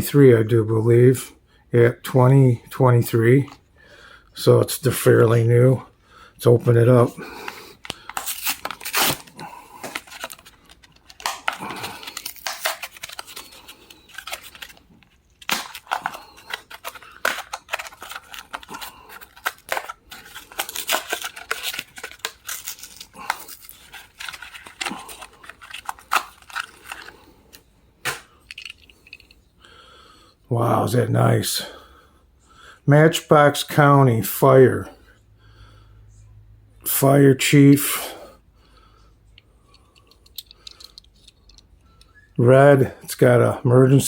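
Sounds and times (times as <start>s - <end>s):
plastic packaging crinkling: 7.4s - 29.1s
cardboard tearing: 8.2s - 14.8s, 15.4s - 27.1s.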